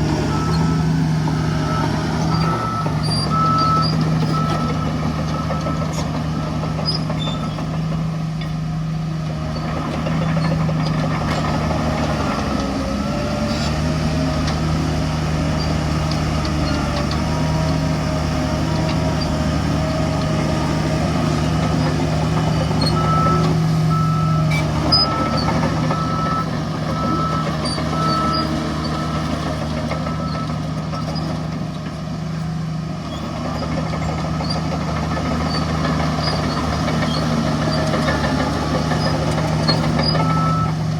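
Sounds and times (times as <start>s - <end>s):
heavy diesel engines running: 0.0s - 40.9s
reversing alarm beeping: 0.2s - 6.8s, 22.4s - 31.3s, 40.0s - 40.8s.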